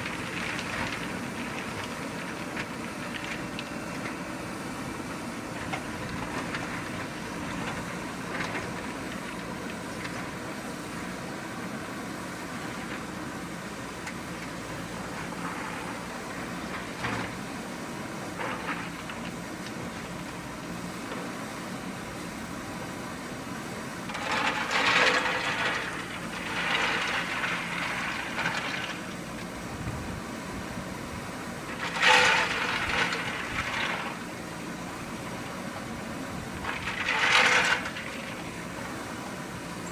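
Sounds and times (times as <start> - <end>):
diesel engine running: 0.0 - 39.9
rough machine work bursts: 31.6 - 34.2.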